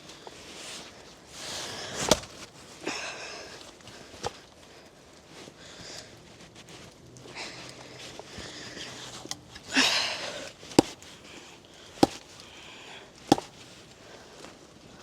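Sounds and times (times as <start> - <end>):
axe striking log: 2.0 - 2.4, 10.8 - 11.1, 12.0 - 12.3, 13.3 - 13.6.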